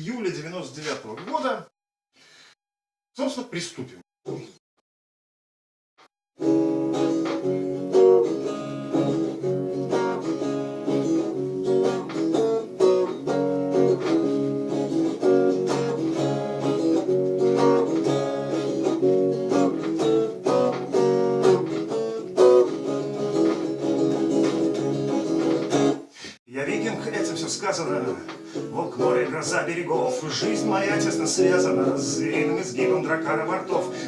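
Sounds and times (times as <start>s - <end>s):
guitar strumming chords: 6.4s - 34.0s.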